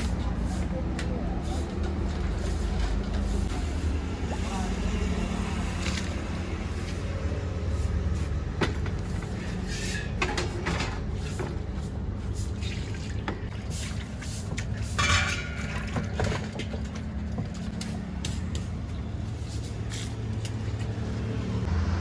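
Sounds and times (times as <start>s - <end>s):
road traffic rumble: 0.0s - 22.0s
dishes and utensils clattering: 9.6s - 11.6s, 14.8s - 17.7s.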